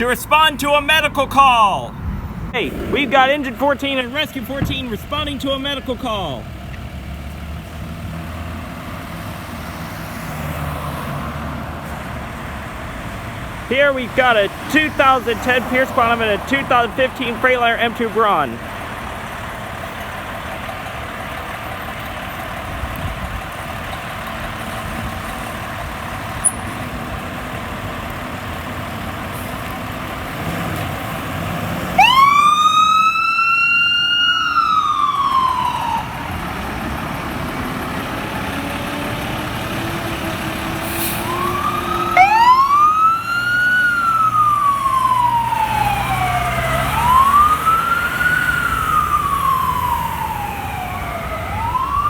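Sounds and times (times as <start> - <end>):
diesel engine running: 0.0 - 52.0
siren wailing: 31.9 - 38.9, 41.2 - 52.0.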